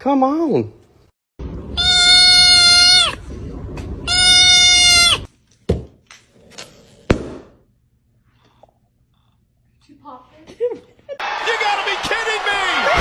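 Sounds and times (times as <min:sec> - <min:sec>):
goat bleating: 0:01.8 - 0:03.2, 0:04.1 - 0:05.3.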